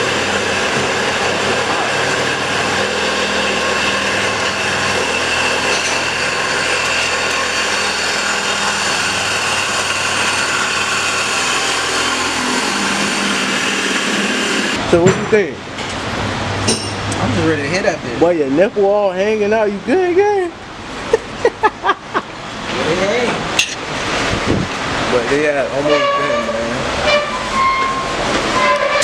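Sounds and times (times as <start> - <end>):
machine noise with whining tones: 0.0 - 14.9, 23.9 - 29.0.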